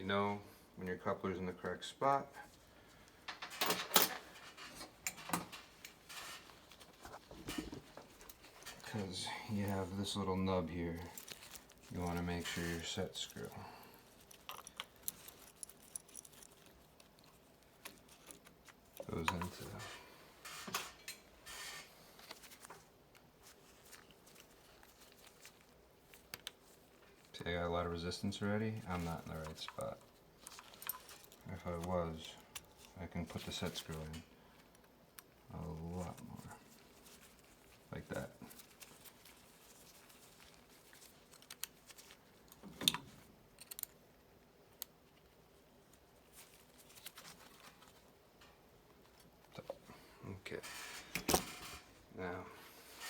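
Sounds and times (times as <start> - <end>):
tools and metal parts clicking: 3.3 - 6.6, 11.0 - 22.4, 29.4 - 31.4, 40.0 - 44.0.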